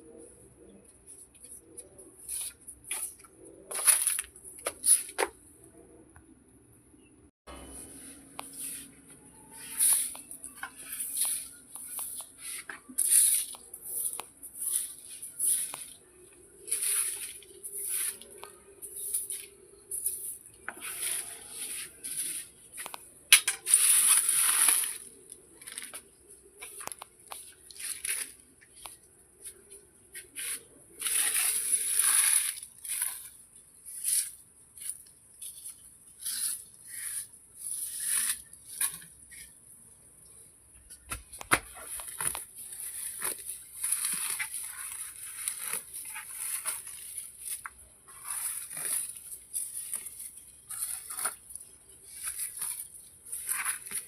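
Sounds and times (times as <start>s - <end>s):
brushing or scraping strokes: 7.6s - 22.9s, 23.5s - 25.8s, 29.4s - 33.2s.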